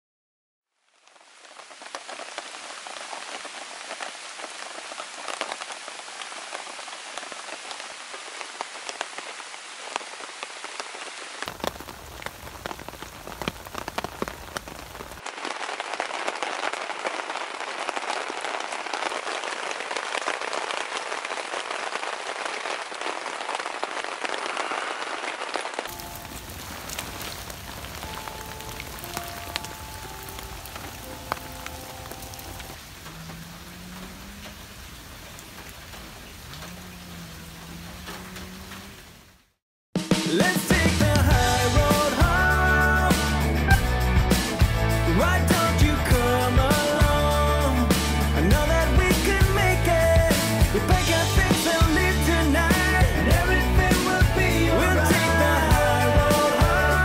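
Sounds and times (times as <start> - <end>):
rain on a tent: 0.6 - 57.0.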